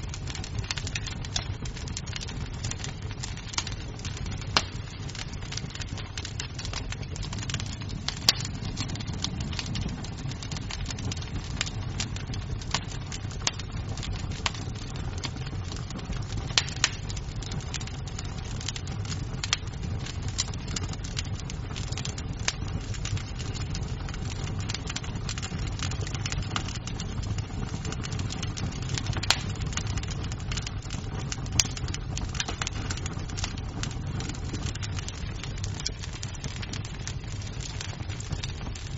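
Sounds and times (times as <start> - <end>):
loud fire cracks: 0.0 - 38.9
wood fire crackling: 0.0 - 38.9.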